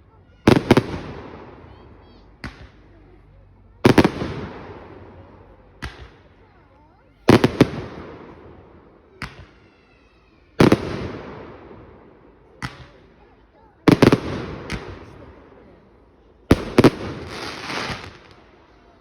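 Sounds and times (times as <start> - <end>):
fireworks banging: 3.8 - 6.2, 7.3 - 9.6, 10.6 - 15.6, 16.5 - 18.8.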